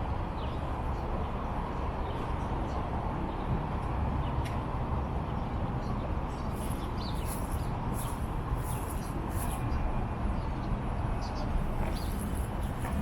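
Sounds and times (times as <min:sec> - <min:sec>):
birds chirping: 0:06.3 - 0:09.8, 0:11.2 - 0:13.0.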